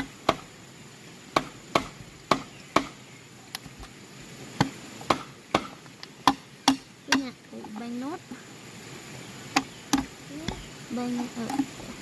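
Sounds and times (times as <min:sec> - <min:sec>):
chopping strikes on bamboo: 0:00.0 - 0:00.5, 0:01.3 - 0:03.0, 0:04.6 - 0:07.3, 0:09.5 - 0:10.7.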